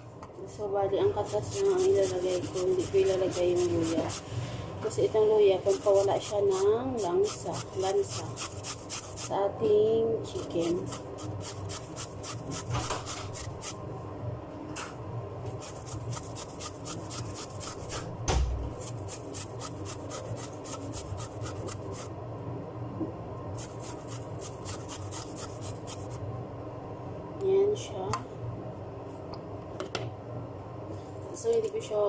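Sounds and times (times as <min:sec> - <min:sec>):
ginger rasping on hand grater: 0:01.2 - 0:04.3, 0:05.7 - 0:09.3, 0:10.4 - 0:13.8, 0:15.5 - 0:18.0, 0:18.8 - 0:22.1, 0:23.6 - 0:26.2
loud knock: 0:18.0 - 0:18.7.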